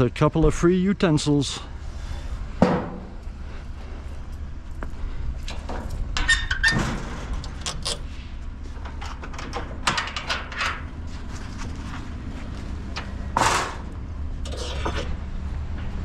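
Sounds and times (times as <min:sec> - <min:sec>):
metal barbecue utensils clanking: 0:13.0 - 0:15.2.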